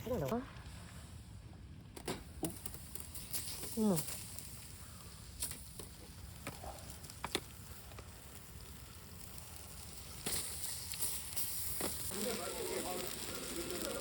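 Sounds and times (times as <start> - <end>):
sharp fire crackles: 0.1 - 14.0
campfire hissing: 0.6 - 14.0.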